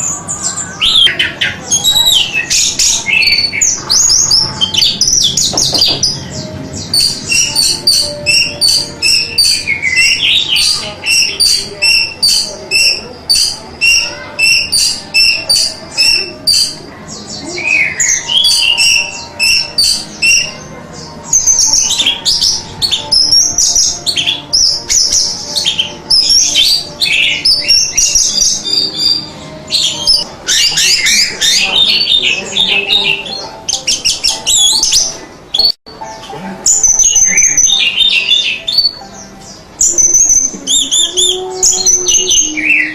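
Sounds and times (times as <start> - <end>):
thrush singing whistled notes: 0.5 - 20.6, 21.3 - 35.8, 36.7 - 42.9.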